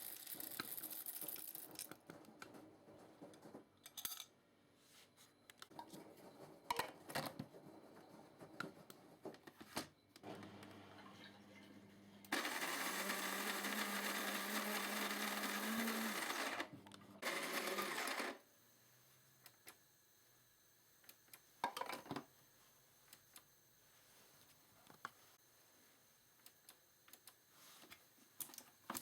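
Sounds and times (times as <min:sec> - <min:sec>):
coffee grinder grinding: 0:12.3 - 0:18.4.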